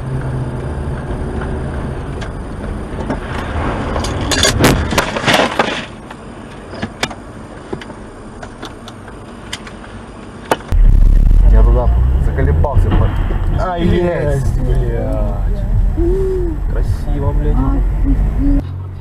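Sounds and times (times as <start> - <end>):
car road and engine noise: 0.0 - 19.0
car collision crunching: 3.0 - 6.2.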